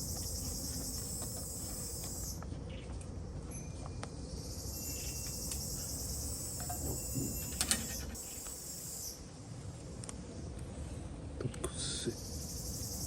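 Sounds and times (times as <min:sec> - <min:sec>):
insects chirring: 0:00.0 - 0:02.4, 0:04.2 - 0:09.4, 0:11.9 - 0:13.0.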